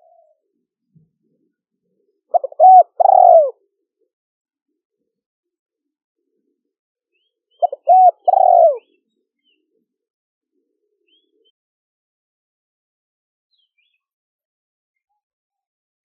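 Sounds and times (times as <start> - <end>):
dove cooing: 0.0 - 0.5, 2.3 - 3.6, 7.6 - 9.0
small birds chirping: 7.1 - 9.8, 11.0 - 11.6, 13.5 - 14.1.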